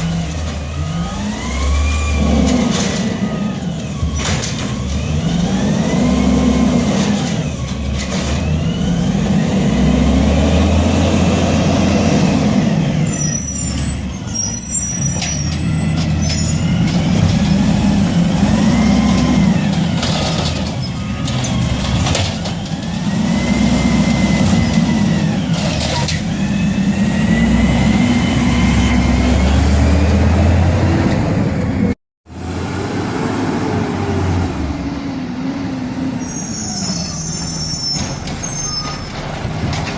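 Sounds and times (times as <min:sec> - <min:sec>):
diesel truck engine revving: 0:00.0 - 0:39.9
high squeals: 0:12.9 - 0:17.2, 0:36.1 - 0:39.9.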